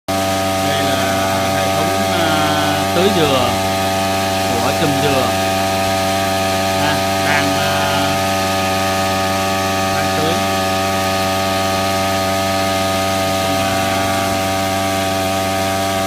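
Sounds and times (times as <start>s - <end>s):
small petrol engine running: 0.1s - 16.0s.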